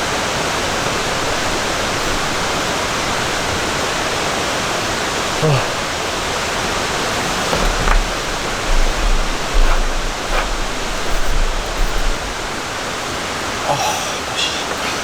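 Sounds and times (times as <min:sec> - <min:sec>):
rain hissing: 0:05.4 - 0:14.9
low rumbles: 0:07.0 - 0:13.0.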